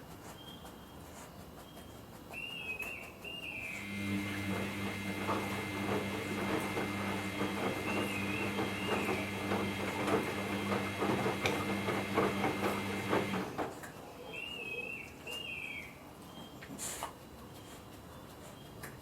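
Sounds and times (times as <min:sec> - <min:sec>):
washing machine motor hum: 0:03.8 - 0:13.8.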